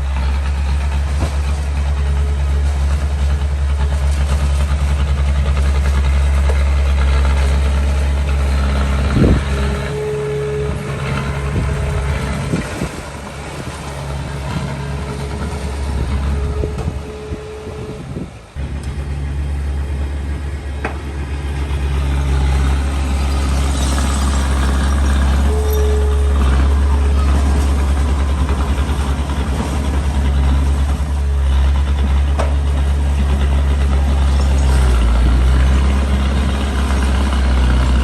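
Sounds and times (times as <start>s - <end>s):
bulldozer diesel engine running: 0.0s - 38.0s
thin steady whine: 6.3s - 32.0s.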